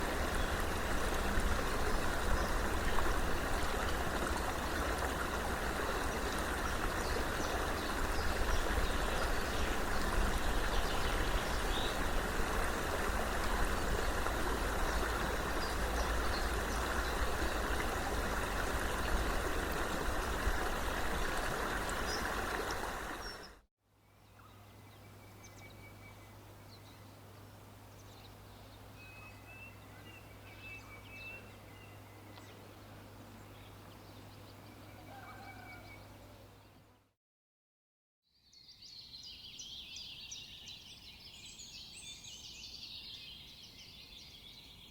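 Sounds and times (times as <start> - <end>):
stream water rushing: 0.0 - 23.6.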